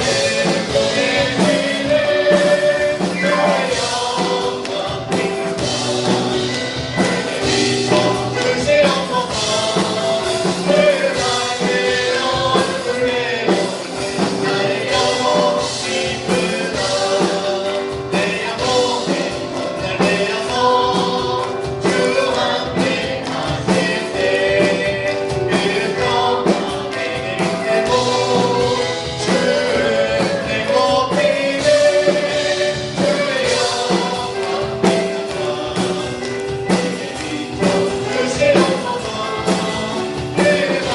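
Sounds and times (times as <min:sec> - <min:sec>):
band with steady beat: 0:00.0 - 0:40.9
group of singers: 0:00.0 - 0:40.9.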